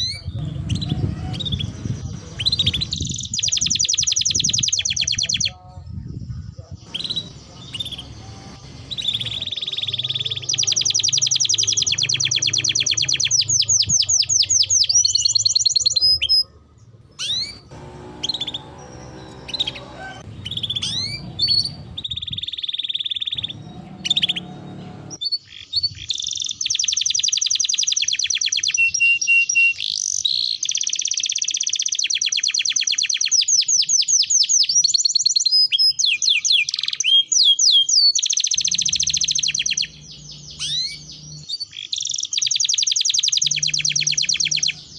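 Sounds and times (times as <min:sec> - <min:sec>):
songbird trilling: 0:00.0 - 0:44.9.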